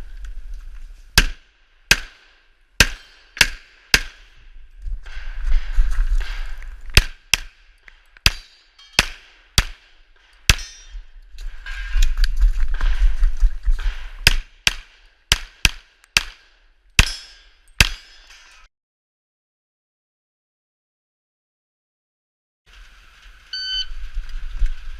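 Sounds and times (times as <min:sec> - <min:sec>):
handgun shots: 0:08.2 - 0:09.9, 0:14.2 - 0:18.2.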